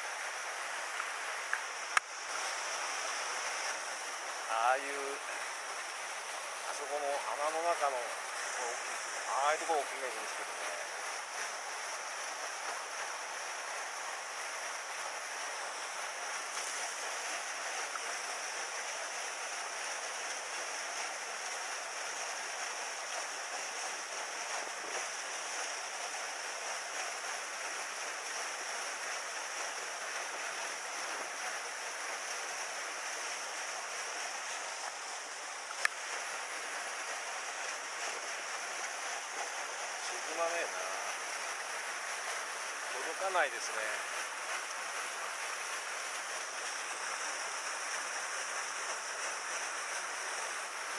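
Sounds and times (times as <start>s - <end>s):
stream water rushing: 0.0s - 50.9s.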